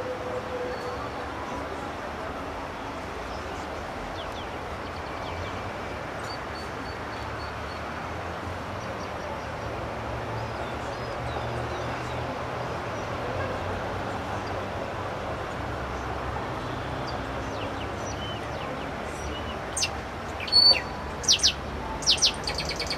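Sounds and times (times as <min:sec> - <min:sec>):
high bird chirps: 0:19.8 - 0:22.9.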